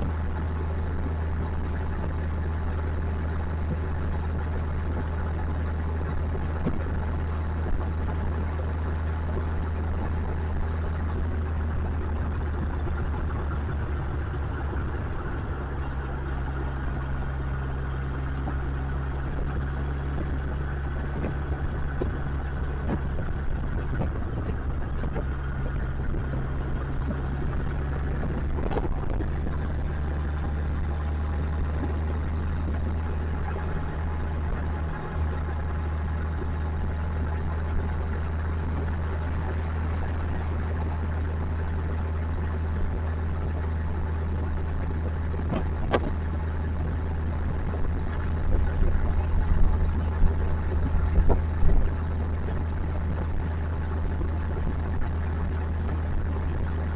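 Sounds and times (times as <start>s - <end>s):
motorcycle engine running: 0.0s - 56.9s
rushing wind noise: 0.0s - 56.9s
bumps: 9.4s - 35.4s.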